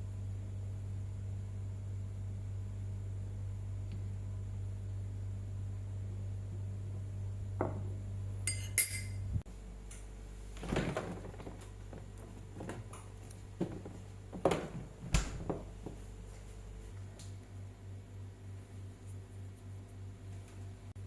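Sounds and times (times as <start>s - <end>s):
steady low hum: 0.0s - 21.0s
utensils and dishes knocking: 8.5s - 9.2s
metallic clinks: 8.5s - 9.3s.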